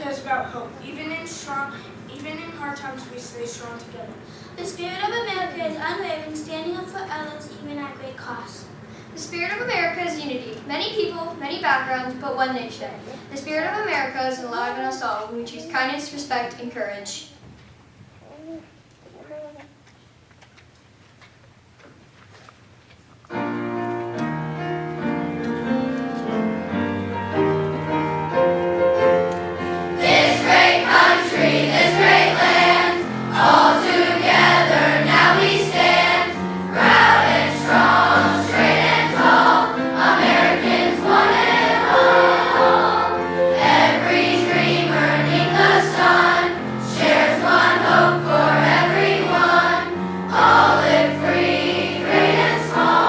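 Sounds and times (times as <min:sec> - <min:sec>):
piano: 0:23.3 - 0:53.0
children's choir singing: 0:29.2 - 0:53.0.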